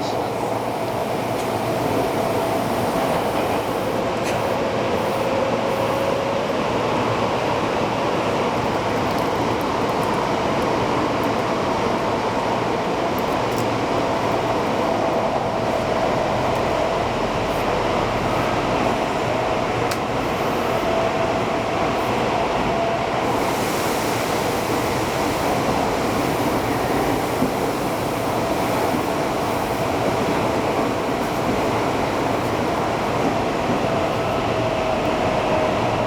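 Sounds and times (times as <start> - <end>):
subway train rumbling in tunnel: 0.0 - 36.0
hiss: 0.5 - 6.1, 23.2 - 33.1.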